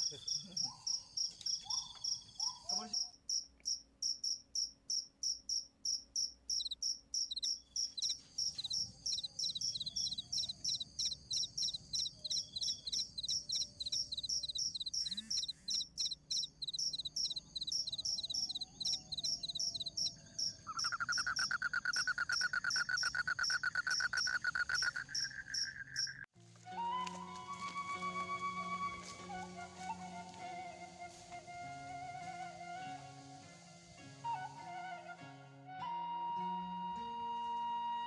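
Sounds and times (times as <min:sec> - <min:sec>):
crickets chirping: 0:00.0 - 0:26.3
fast-pulsing insect trill: 0:00.0 - 0:26.3
flute-like background music: 0:26.4 - 0:38.0.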